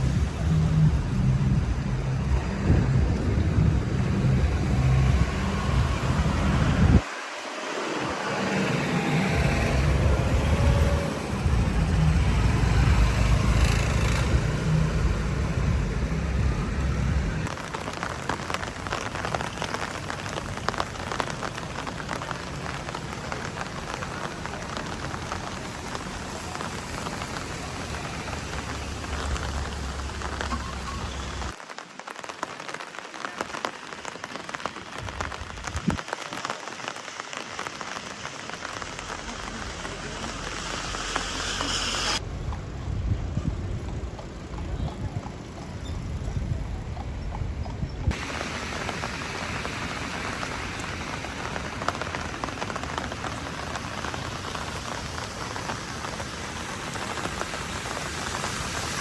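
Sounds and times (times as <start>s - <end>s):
heavy low rumble: 0.0s - 7.0s, 8.8s - 17.5s, 38.5s - 52.2s
rain falling on a surface: 0.0s - 59.0s.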